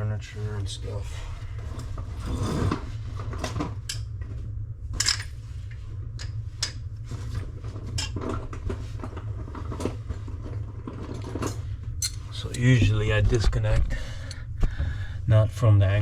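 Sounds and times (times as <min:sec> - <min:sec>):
low hum: 0:00.0 - 0:16.0
tools clinking and knocking: 0:05.0 - 0:05.3.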